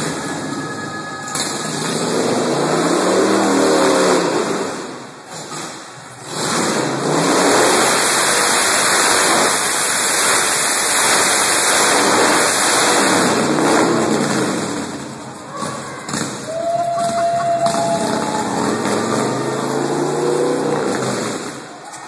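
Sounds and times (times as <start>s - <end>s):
motorcycle engine revving hard: 1.6s - 21.8s.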